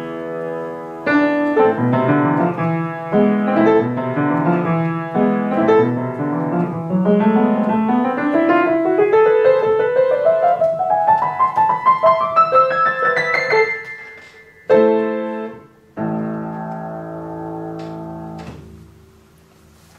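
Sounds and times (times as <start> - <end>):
piano playing: 0.0 - 19.4.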